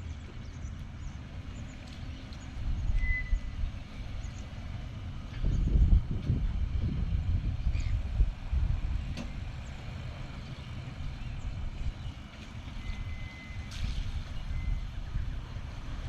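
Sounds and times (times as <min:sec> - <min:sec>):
low vehicle or wind rumble: 0:00.0 - 0:16.0
reversing beeper: 0:12.8 - 0:14.9.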